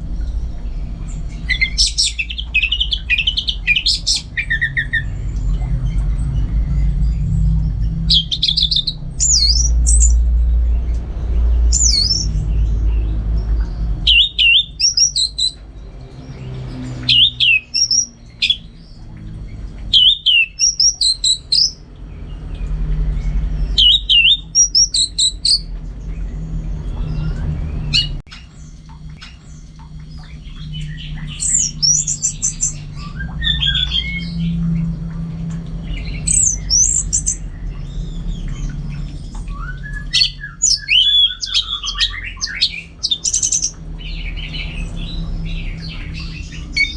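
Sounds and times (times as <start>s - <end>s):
steady low rumble: 0.0s - 46.9s
thrush singing whistled phrases: 11.7s - 12.4s, 14.1s - 15.6s, 17.1s - 18.6s, 19.9s - 21.8s, 23.8s - 25.7s, 39.5s - 43.7s.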